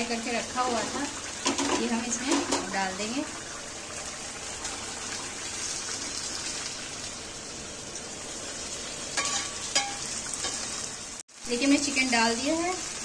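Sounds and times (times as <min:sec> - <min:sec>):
chicken sizzling in oil: 0:00.0 - 0:13.0
utensil clinking against pan: 0:09.2 - 0:10.6.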